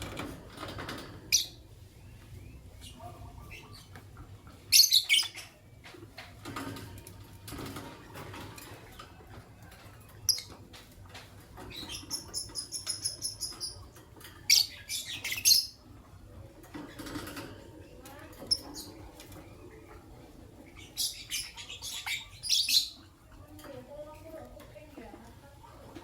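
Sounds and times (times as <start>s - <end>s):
lovebirds chirping shrilly: 20.8s - 23.0s.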